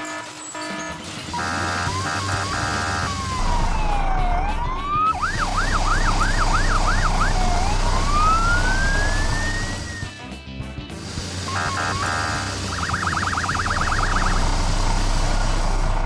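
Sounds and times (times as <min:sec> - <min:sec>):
short horn note: 0:00.0 - 0:04.9
cartoon fire truck siren: 0:00.0 - 0:10.2, 0:11.4 - 0:16.0
low engine rumble: 0:01.3 - 0:10.2, 0:10.8 - 0:16.0.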